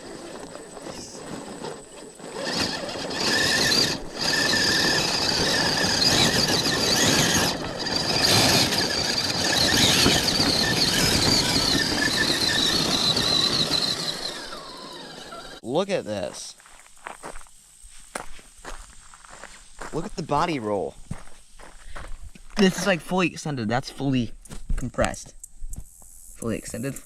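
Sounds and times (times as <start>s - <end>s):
electric motor whine: 0.0s - 15.6s.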